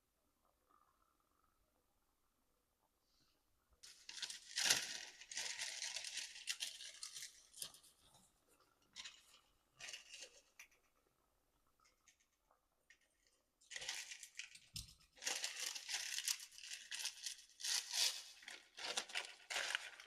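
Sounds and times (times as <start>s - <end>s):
paper or plastic crinkling: 3.8s - 8.1s, 9.0s - 10.7s, 13.6s - 20.0s.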